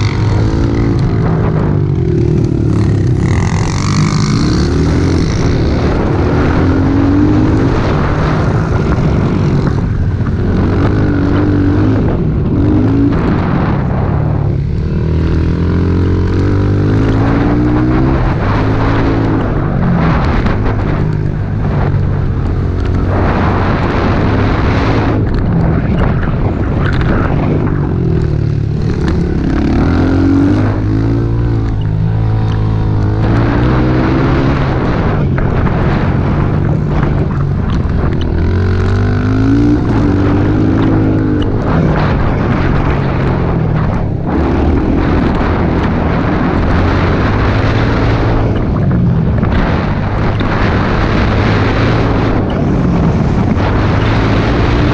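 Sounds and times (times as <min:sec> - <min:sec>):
small motorbike engine revving: 0:00.0 - 0:13.7
continuous rushing noise: 0:00.0 - 0:54.9.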